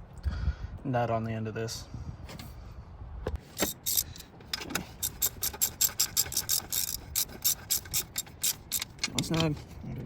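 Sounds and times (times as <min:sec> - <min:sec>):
hand ratchet clicking: 0:03.6 - 0:04.2, 0:05.0 - 0:09.5.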